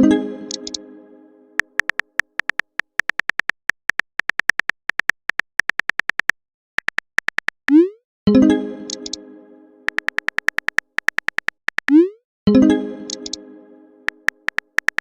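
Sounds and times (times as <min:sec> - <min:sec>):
keyboard tap clicks: 0:00.5 - 0:00.8, 0:01.6 - 0:07.8, 0:08.9 - 0:09.2, 0:09.9 - 0:12.0, 0:13.1 - 0:13.4, 0:14.1 - 0:15.0.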